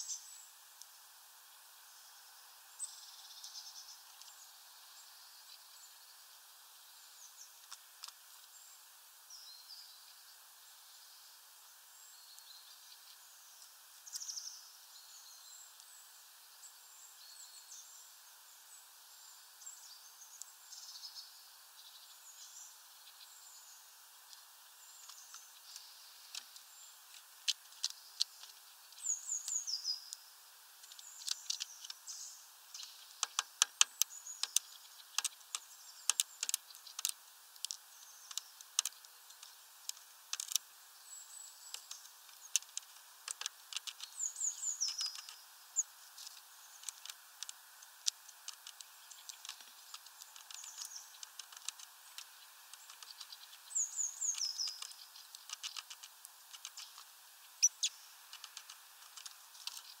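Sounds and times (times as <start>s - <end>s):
sharp high bird ticks: 12.3s - 14.7s, 24.1s - 60.0s
small birds descending calls: 30.8s - 60.0s.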